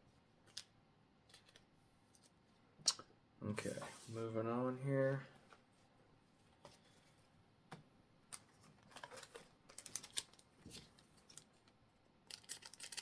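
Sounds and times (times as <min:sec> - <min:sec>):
foil pack crinkling: 0:09.0 - 0:10.5, 0:12.3 - 0:13.0.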